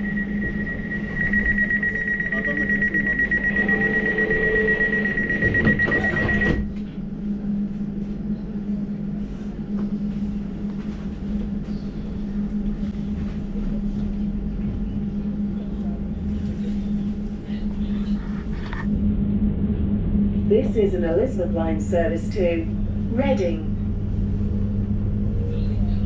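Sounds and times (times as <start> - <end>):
rapid high door warning beeps: 0.0 - 6.7
train doors shutting: 0.0 - 7.0
train low hum: 0.0 - 26.0.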